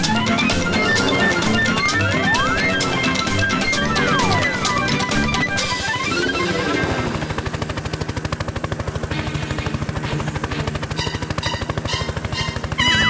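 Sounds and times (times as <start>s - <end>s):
background music: 0.0s - 7.4s, 9.1s - 13.0s
cartoon helicopter rattle: 0.0s - 13.0s.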